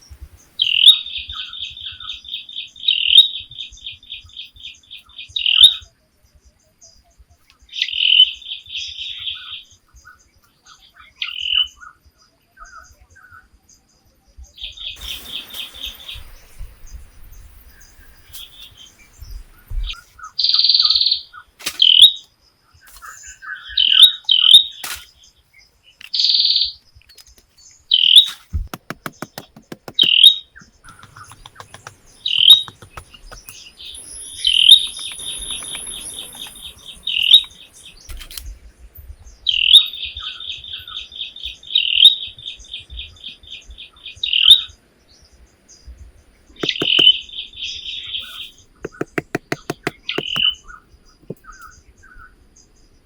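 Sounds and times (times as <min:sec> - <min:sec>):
birds chirping: 0:27.7 - 0:38.2, 0:45.3 - 0:52.9.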